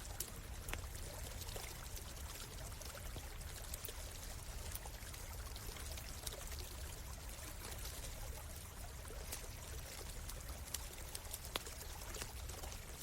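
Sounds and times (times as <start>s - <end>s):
campfire crackling: 0.0s - 13.0s
stream trickling over rocks: 0.0s - 13.0s.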